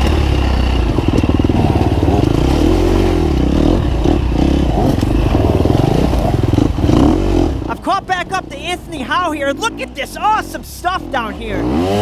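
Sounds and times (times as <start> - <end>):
dirt bike engine revving: 0.0 - 7.8, 11.5 - 12.0.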